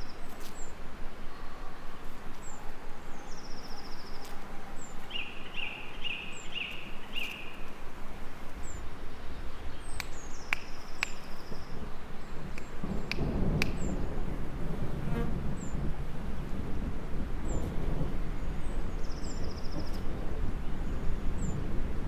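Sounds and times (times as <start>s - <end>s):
lower whistled bird notes: 0.0s - 7.8s, 8.6s - 14.2s
birds chirping: 0.0s - 14.4s, 15.1s - 21.8s
gentle rain hiss: 0.0s - 22.0s
sharp clicks: 9.9s - 11.6s, 12.5s - 13.9s.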